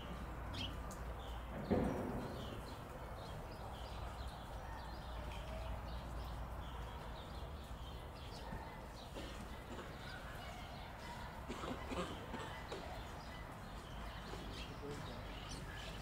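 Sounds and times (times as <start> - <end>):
small birds chirping: 0.0 - 16.0
low thump: 1.5 - 2.9.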